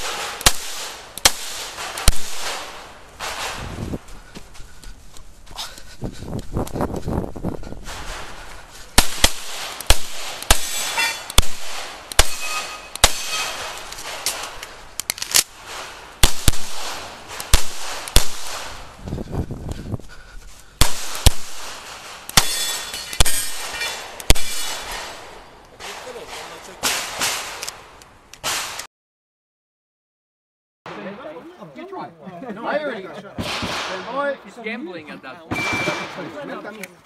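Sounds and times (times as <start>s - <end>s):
pistol shots: 0.0s - 3.7s, 9.0s - 14.6s, 15.6s - 18.8s, 20.8s - 27.8s, 33.4s - 34.2s.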